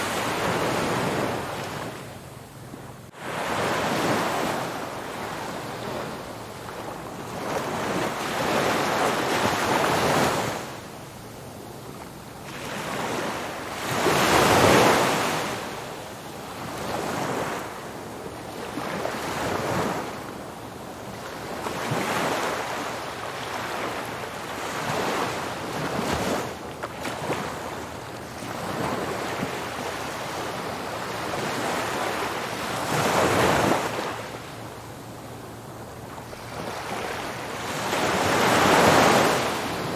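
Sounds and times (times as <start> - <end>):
waves breaking on a beach: 0.0 - 39.9.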